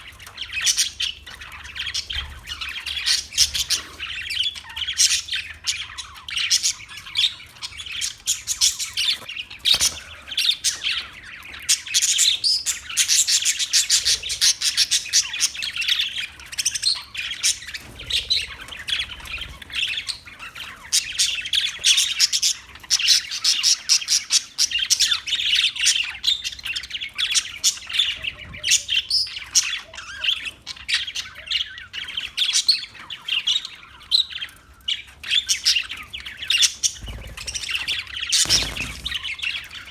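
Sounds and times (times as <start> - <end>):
parakeets chirping and squawking: 0.0 - 39.9.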